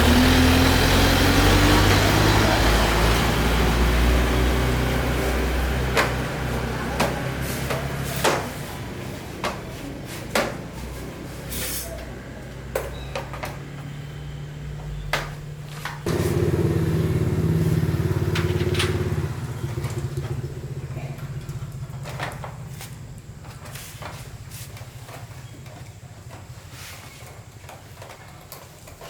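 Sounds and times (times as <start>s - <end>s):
small motorbike engine running: 16.0s - 29.0s.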